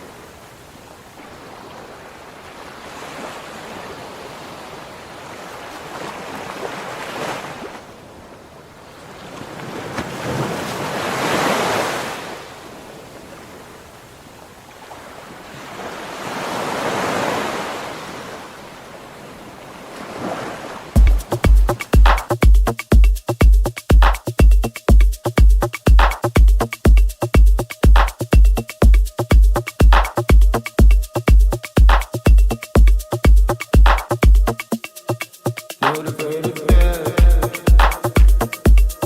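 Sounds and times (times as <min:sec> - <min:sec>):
sea waves washing in: 0:00.0 - 0:22.4.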